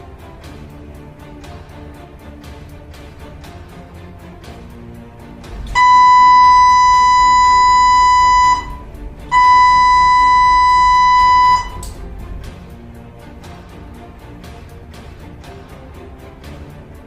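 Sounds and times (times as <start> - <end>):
faint background music: 0.0 - 17.0
long high-pitched beeps: 5.8 - 11.9.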